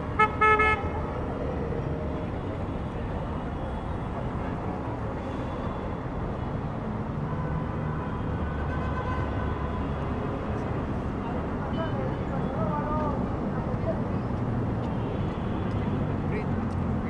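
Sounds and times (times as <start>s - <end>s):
passing city traffic: 0.0s - 17.0s.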